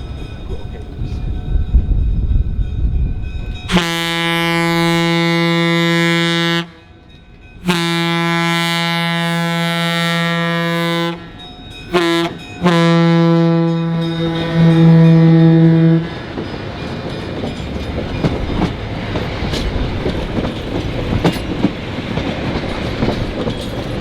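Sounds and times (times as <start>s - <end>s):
train rumble: 0.0s - 24.0s
locomotive air horn blasts: 3.7s - 6.9s, 7.6s - 16.2s.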